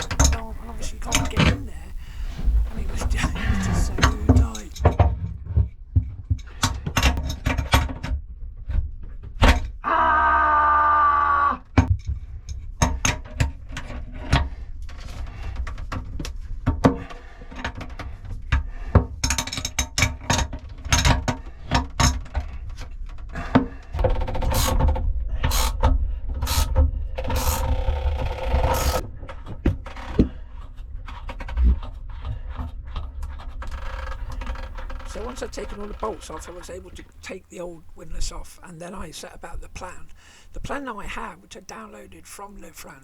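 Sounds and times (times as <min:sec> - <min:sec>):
tool ratcheting: 0:27.3 - 0:29.0.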